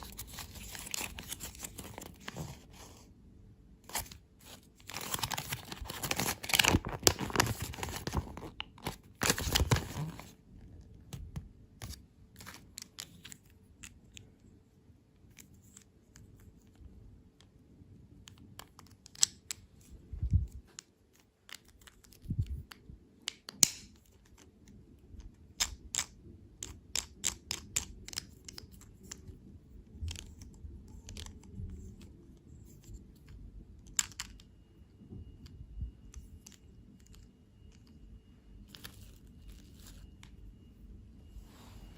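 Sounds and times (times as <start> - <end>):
candy wrapper crinkling: 0.0 - 2.7, 3.9 - 10.3.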